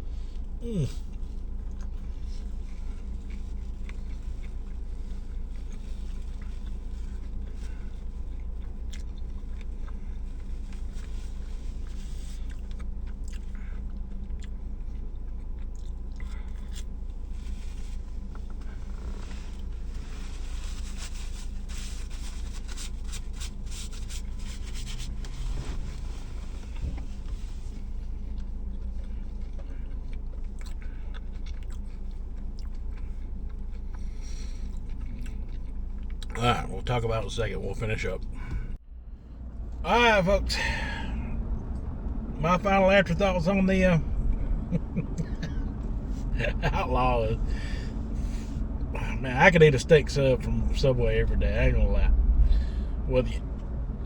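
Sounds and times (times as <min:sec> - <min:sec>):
steady low hum: 0:00.0 - 0:54.0
person chewing sandwich: 0:00.1 - 0:36.4.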